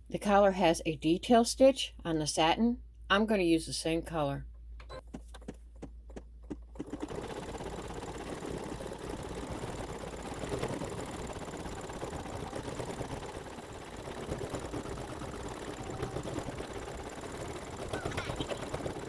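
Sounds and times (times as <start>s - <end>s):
embroidery machine needle chatter: 6.8s - 19.0s
machine clicks: 6.8s - 19.0s.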